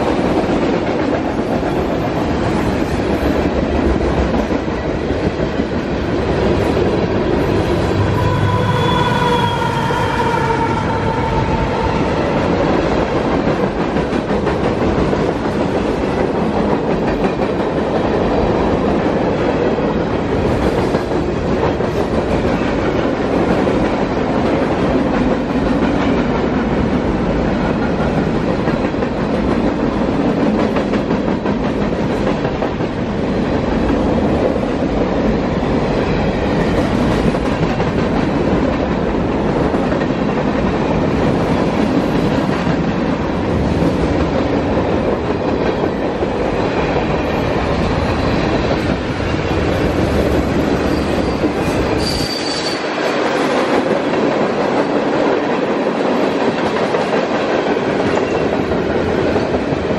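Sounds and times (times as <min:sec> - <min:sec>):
freight train wheels rumbling: 0:00.0 - 0:59.9
high wheel squeal: 0:08.0 - 0:11.6, 0:52.0 - 0:52.9.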